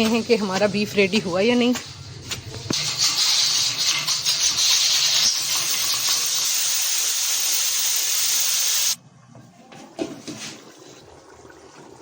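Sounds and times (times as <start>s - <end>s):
pressure cooker steam hissing: 2.8s - 9.0s.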